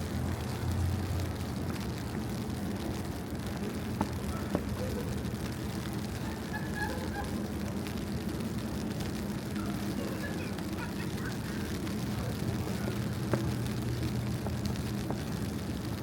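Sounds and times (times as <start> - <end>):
faint distant voices: 3.6 - 8.0, 9.4 - 14.3.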